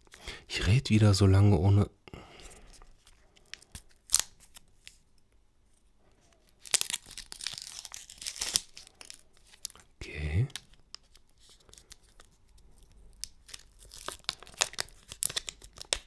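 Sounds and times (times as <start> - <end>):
wrapper tearing and crinkling: 2.9 - 5.0, 6.3 - 9.9, 10.5 - 16.0.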